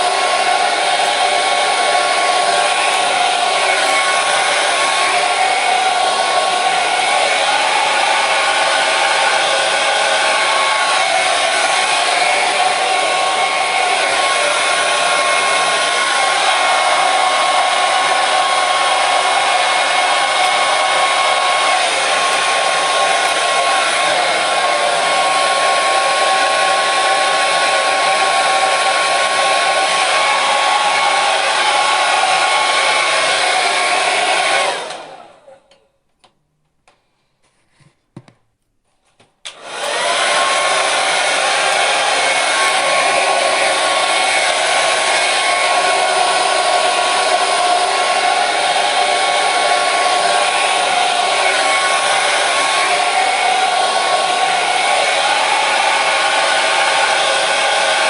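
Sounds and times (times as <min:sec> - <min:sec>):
hair dryer blowing: 0:00.0 - 0:35.8, 0:39.5 - 0:58.0.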